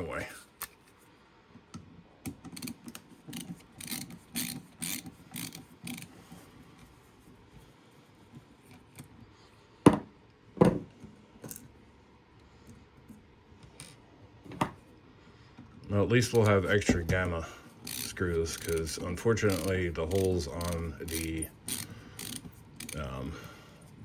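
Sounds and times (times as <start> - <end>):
screwdriver ratchet clicks: 2.5 - 6.1, 17.8 - 23.1.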